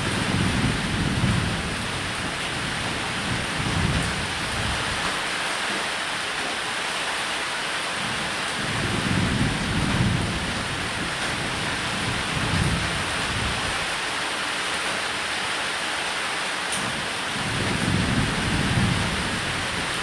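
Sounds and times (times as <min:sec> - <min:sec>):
thunder rumbling: 0:00.0 - 0:05.0, 0:17.4 - 0:20.0
steady rain: 0:00.0 - 0:20.0.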